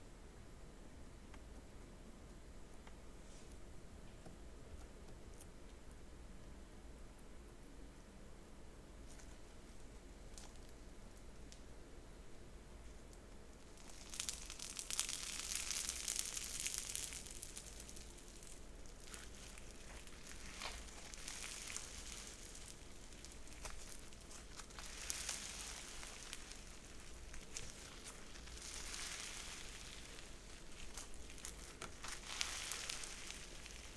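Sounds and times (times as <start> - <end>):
hands squishing crackling slime: 13.6 - 33.9.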